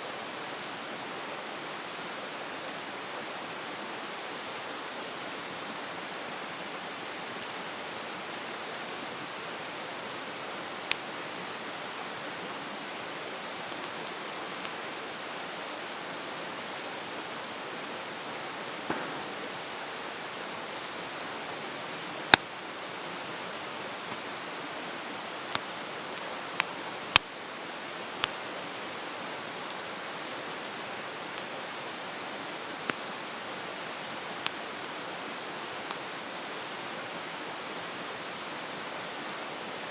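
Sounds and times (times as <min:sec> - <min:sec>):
campfire hissing: 0:00.1 - 0:39.9
burning wood popping and crackling: 0:18.8 - 0:21.0, 0:21.8 - 0:22.6.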